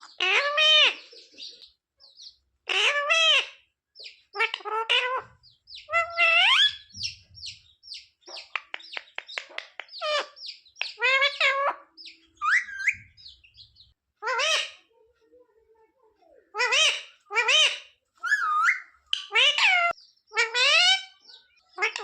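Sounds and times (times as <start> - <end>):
parakeet calling and chattering: 0.0 - 15.0, 16.5 - 22.0.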